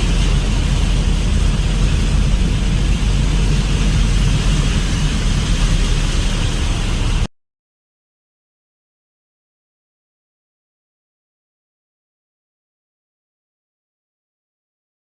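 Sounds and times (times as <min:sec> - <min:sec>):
heavy rain pouring: 0:00.0 - 0:07.3.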